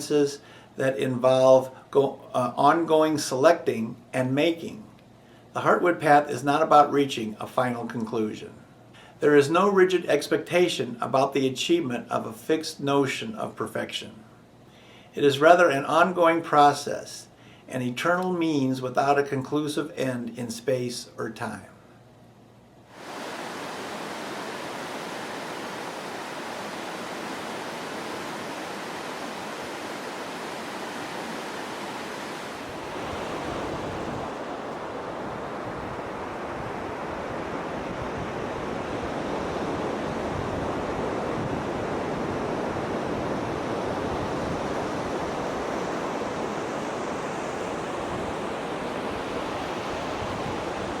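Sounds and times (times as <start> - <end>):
running water rushing: 23.0 - 51.0.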